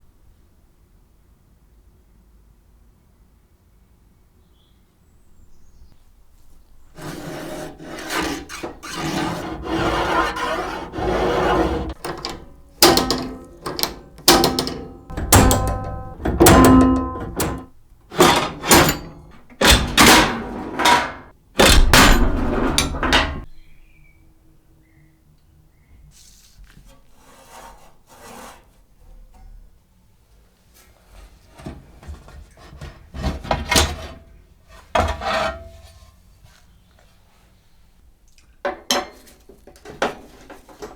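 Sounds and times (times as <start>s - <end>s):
rubbing and scraping of machine parts: 6.4s - 23.6s
knocking strokes with metallic ring: 10.9s - 19.4s.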